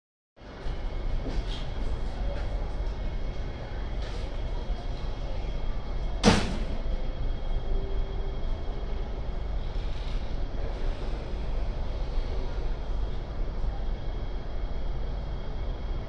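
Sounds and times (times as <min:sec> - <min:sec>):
train rumbling: 0:00.4 - 0:16.0.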